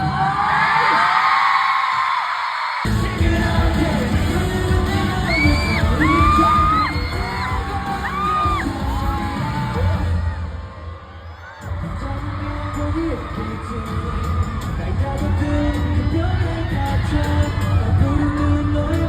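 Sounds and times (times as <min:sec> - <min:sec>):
pop music with singing: 0:00.0 - 0:19.0
heavy bass beat: 0:02.9 - 0:10.3, 0:11.6 - 0:19.0.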